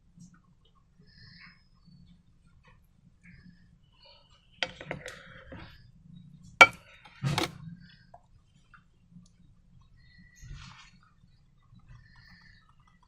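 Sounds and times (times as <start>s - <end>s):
containers and utensils clinking: 6.6s - 7.6s.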